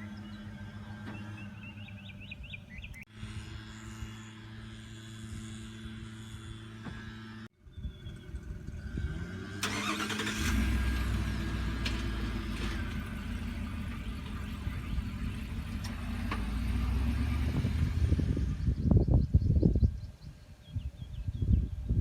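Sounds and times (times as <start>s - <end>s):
engine starting and running: 0.0s - 3.0s, 6.2s - 19.0s.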